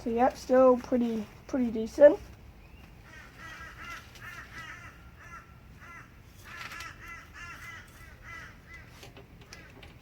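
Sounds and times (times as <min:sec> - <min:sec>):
bird cawing: 0:03.0 - 0:09.9.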